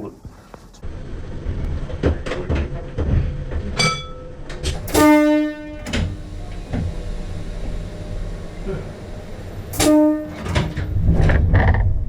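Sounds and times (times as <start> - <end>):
low cab rumble: 4.4 - 12.0
electric train horn blast: 4.7 - 12.0.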